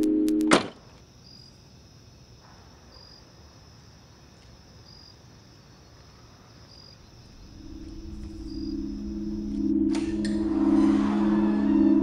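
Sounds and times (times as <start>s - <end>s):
crickets chirping: 0.6s - 12.0s
low music tone: 7.3s - 12.0s.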